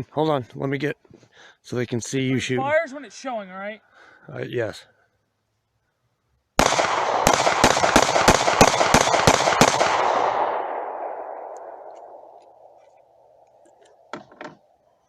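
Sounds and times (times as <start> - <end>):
rapid handgun shots: 6.6 - 12.8.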